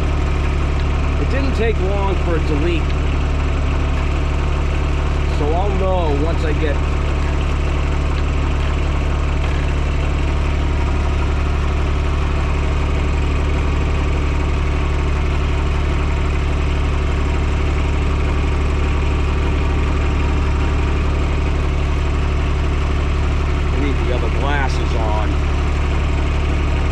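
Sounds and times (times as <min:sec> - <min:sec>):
diesel tractor engine idling: 0:00.0 - 0:26.9.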